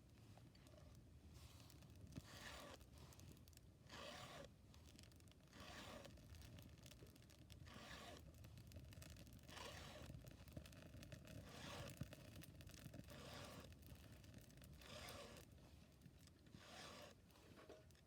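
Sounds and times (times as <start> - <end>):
file rasping on chainsaw chain: 3.9 - 4.5, 14.8 - 15.4, 16.5 - 17.2.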